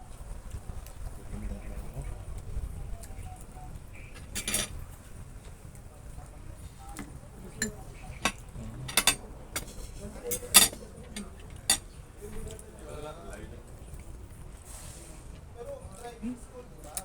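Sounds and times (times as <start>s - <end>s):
cutlery clinking against plates: 3.0s - 5.6s, 6.8s - 12.7s.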